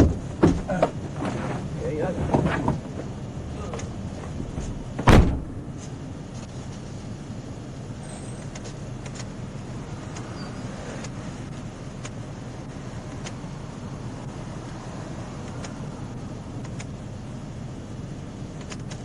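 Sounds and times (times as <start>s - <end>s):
loud thump: 0.0s - 0.9s, 4.4s - 6.0s
vehicle humming: 0.0s - 19.0s.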